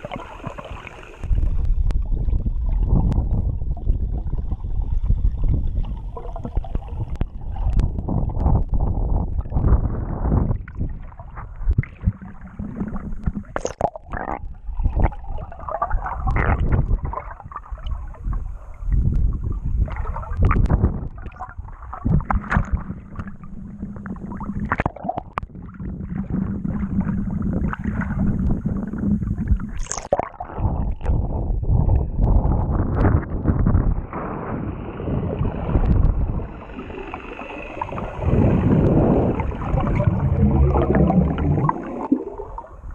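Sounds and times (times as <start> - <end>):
wind buffeting microphone: 1.3 - 12.1, 30.6 - 36.9, 37.7 - 41.7
low hum: 30.6 - 42.9.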